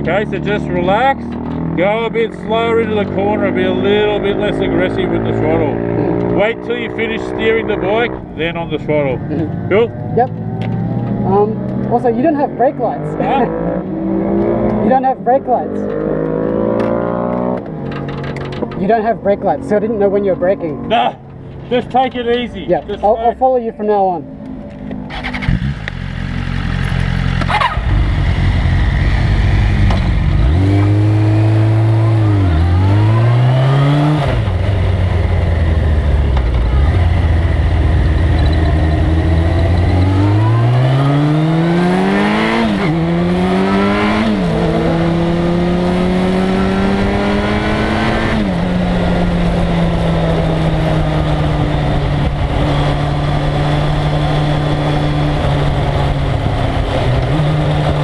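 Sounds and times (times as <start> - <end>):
motorcycle engine accelerating: 0.0 - 23.4, 24.2 - 58.0.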